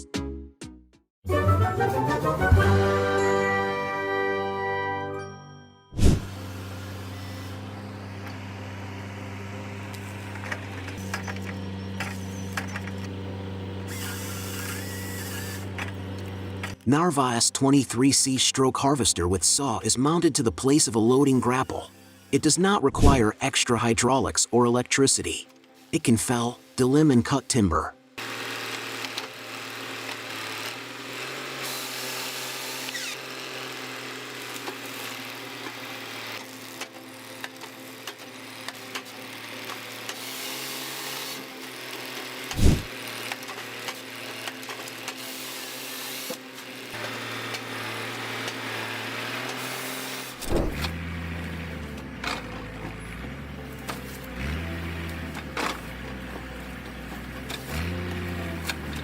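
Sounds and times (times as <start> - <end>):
machine engine running: 6.0 - 16.8, 28.2 - 59.0
harvester head cutting timber: 6.0 - 17.0, 28.2 - 59.0
low shifting hum: 6.0 - 22.4, 50.4 - 59.0.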